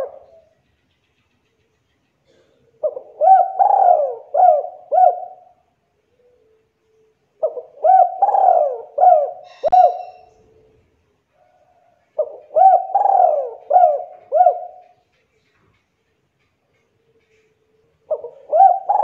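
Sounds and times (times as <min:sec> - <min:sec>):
dove cooing: 0:00.0 - 0:00.5, 0:02.2 - 0:06.6, 0:07.4 - 0:10.9, 0:11.5 - 0:15.1, 0:17.2 - 0:19.0.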